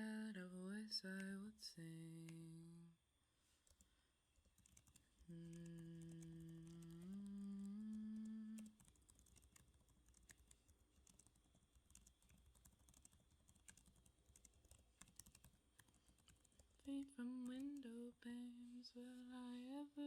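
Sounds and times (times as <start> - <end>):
keyboard typing clicks: 4.5 - 16.6
woman humming softly: 5.3 - 8.8.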